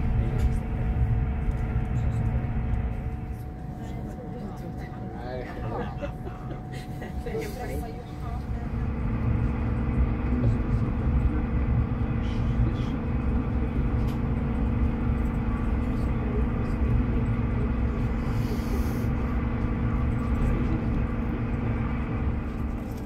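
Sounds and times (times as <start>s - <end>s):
constant hum: 0.0s - 23.0s
train wheels rumbling on track: 7.9s - 23.0s.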